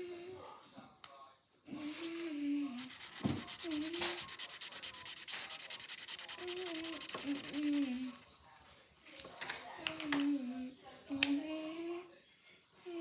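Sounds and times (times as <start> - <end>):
marker scribbling on paper: 2.8 - 8.3.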